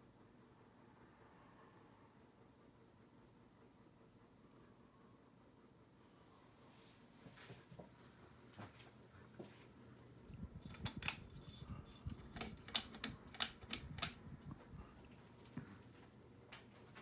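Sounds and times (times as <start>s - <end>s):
hard objects clattering: 10.6s - 14.2s
sharp clicks: 10.6s - 14.6s.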